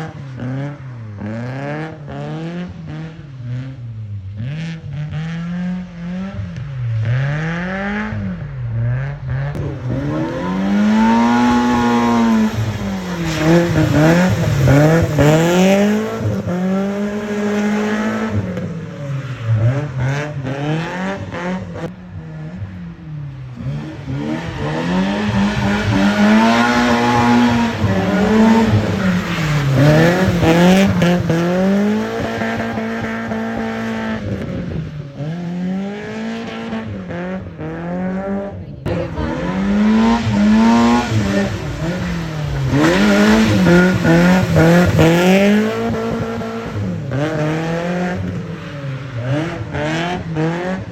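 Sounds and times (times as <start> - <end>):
car engine revving: 0.0 - 50.9.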